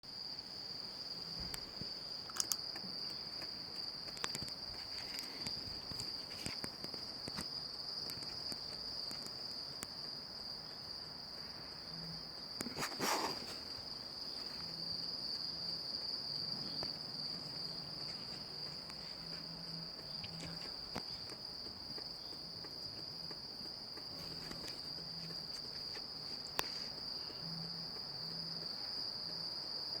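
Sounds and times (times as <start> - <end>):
high-pitched insect chorus: 0.1 - 30.0
scattered clicks: 1.5 - 10.0.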